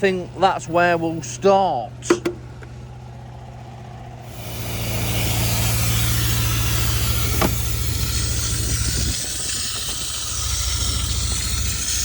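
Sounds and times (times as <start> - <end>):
cleaning machine hum: 4.1 - 12.0
vacuum suction hiss: 4.3 - 12.0.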